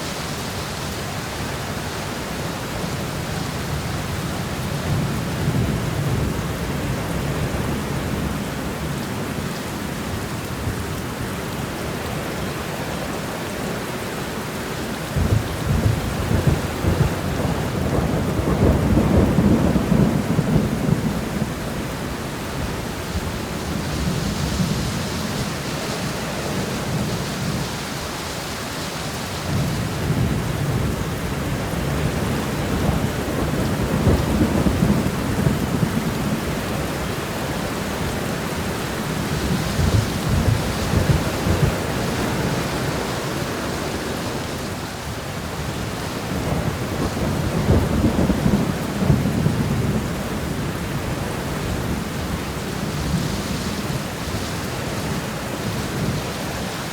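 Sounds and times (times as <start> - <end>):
steady rain: 0.0 - 56.9
thunder rumbling: 15.1 - 27.6, 29.4 - 56.3.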